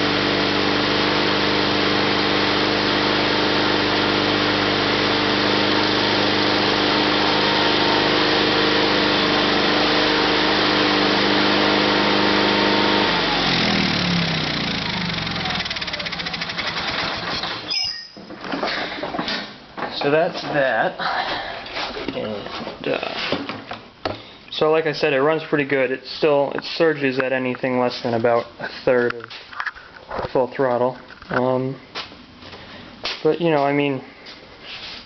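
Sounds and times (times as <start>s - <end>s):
engine winding down: 0.0s - 17.8s
garden tractor engine running: 0.0s - 18.0s.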